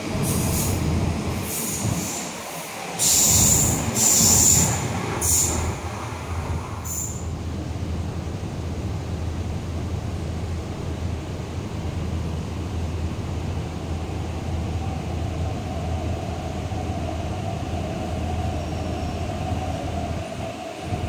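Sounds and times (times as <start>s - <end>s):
electric train pulling in: 0.0s - 21.0s
train whine: 0.0s - 21.0s.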